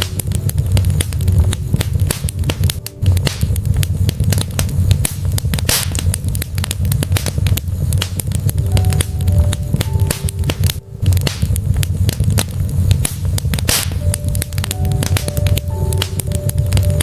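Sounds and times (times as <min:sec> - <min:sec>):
logs crackling and popping: 0:00.0 - 0:17.0
low rumble of flames: 0:00.0 - 0:17.0.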